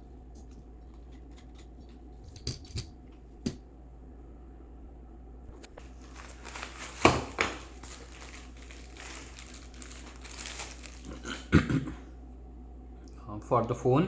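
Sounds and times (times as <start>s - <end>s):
packaging crinkling: 5.7s - 11.5s.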